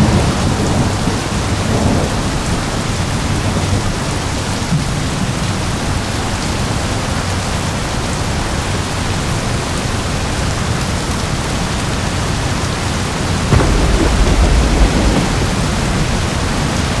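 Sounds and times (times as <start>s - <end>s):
heavy rainfall: 0.0s - 17.0s
thunder clap rumbling: 13.2s - 17.0s.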